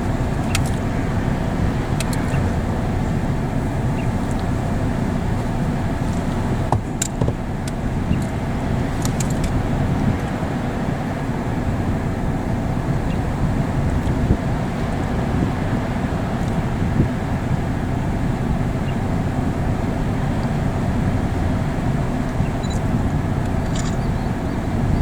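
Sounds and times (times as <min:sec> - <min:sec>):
low rushing noise: 0:00.0 - 0:25.0.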